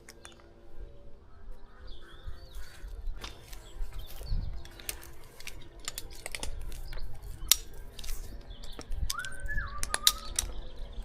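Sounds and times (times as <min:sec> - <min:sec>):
sharp clicks and knocks: 0:04.6 - 0:10.6.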